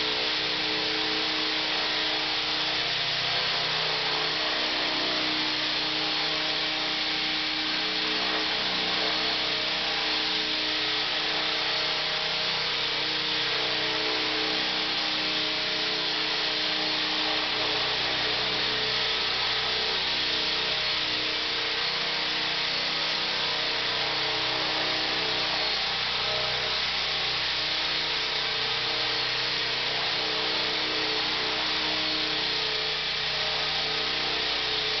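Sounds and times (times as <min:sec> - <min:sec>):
rc helicopter motor whine: 0:00.0 - 0:35.0.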